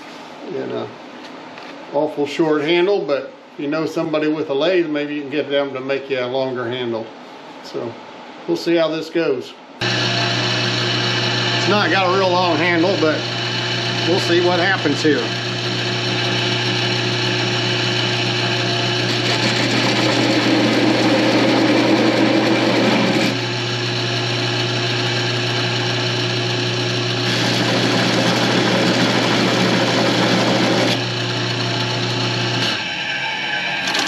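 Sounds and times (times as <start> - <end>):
wheel rasping on spinning wood: 9.8 - 26.2, 27.2 - 32.8
wood lathe motor hum: 9.8 - 33.1.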